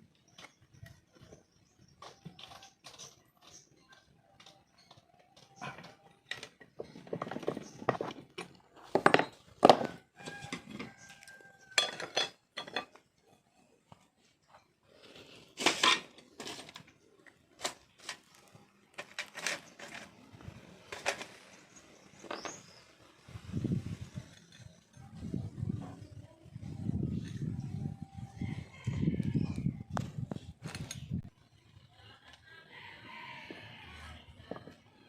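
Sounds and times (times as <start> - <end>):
metal tools clinking and clanking: 11.6 - 13.4, 15.6 - 16.9.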